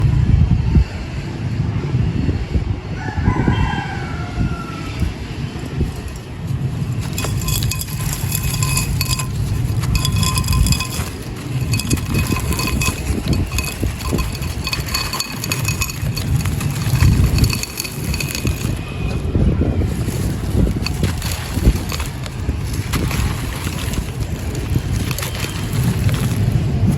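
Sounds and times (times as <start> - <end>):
clay pot crushed and crumbling: 5.8 - 26.9.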